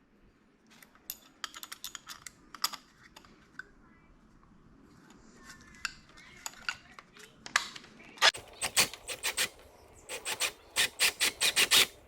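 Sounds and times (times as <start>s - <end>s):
drill chuck clicking: 8.4s - 12.0s.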